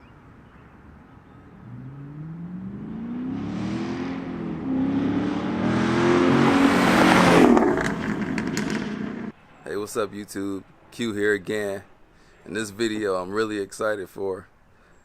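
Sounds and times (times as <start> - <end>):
car engine accelerating: 1.4 - 9.3.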